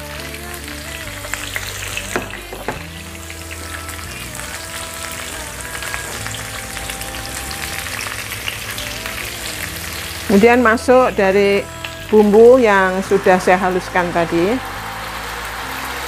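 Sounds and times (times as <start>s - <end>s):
hot oil sizzling in a wok: 0.0s - 16.0s.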